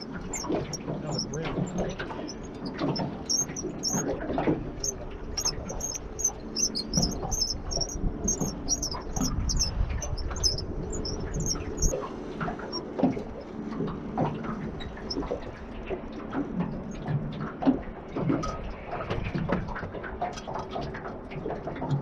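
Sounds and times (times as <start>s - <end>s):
small birds chirping: 0.0s - 4.1s, 4.8s - 12.0s
low rumble: 0.0s - 17.4s.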